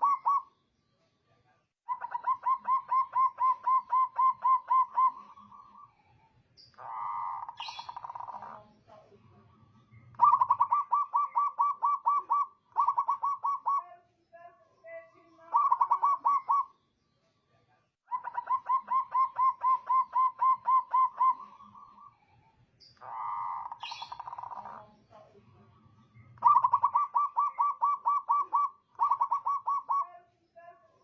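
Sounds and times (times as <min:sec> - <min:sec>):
dove cooing: 0:00.0 - 0:00.5, 0:01.9 - 0:06.0, 0:06.8 - 0:13.9, 0:15.4 - 0:16.7, 0:18.1 - 0:22.3, 0:23.0 - 0:25.6, 0:26.2 - 0:30.2.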